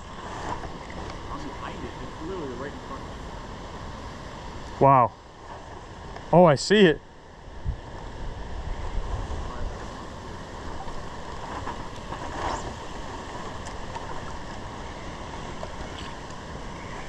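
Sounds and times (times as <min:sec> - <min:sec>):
river water rushing: 0:00.0 - 0:06.1, 0:07.2 - 0:17.0
wind buffeting microphone: 0:07.5 - 0:17.0.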